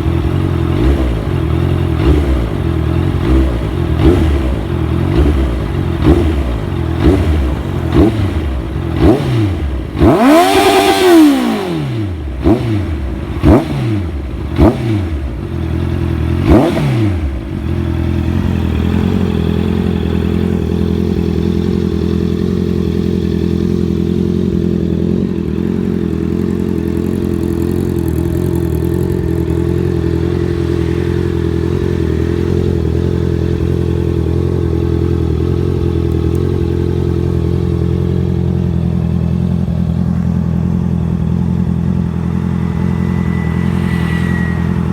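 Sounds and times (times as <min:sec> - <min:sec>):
motorcycle engine idling: 0:00.0 - 0:44.9
motorcycle engine revving: 0:00.0 - 0:44.9.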